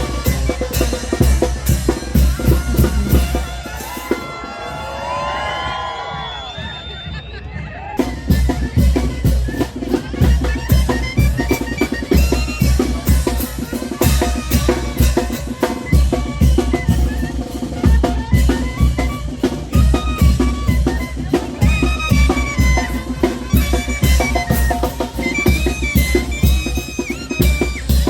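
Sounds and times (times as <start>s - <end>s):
bass drum and snare beat: 0.0s - 4.3s, 6.2s - 28.0s
pitched melody line: 8.0s - 28.0s.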